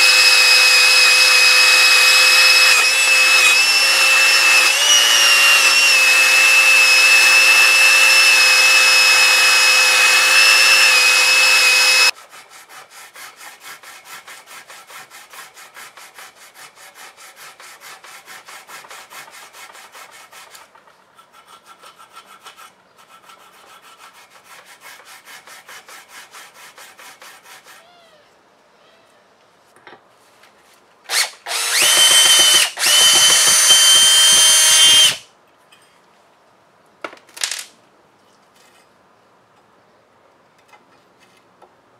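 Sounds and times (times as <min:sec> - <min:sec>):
electric power tool whining: 0:00.0 - 0:12.1, 0:31.1 - 0:35.2.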